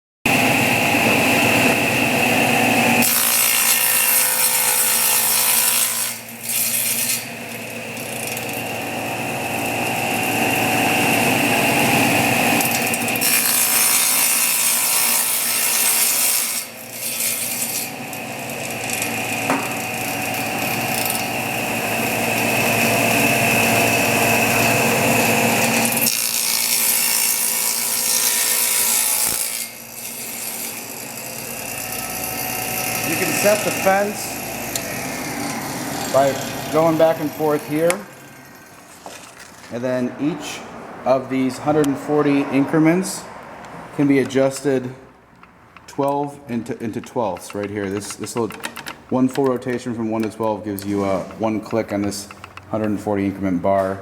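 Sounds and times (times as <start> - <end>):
table saw whining: 0.3 - 43.3.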